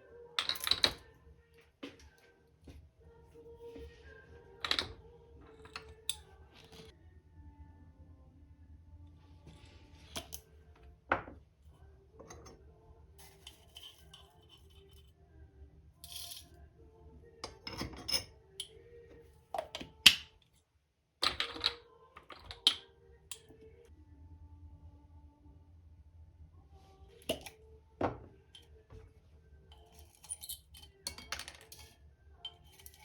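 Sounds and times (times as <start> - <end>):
tea ware clinking: 0.4 - 1.1, 4.6 - 5.0, 19.6 - 20.3, 21.2 - 23.5, 27.3 - 28.7, 29.7 - 33.0.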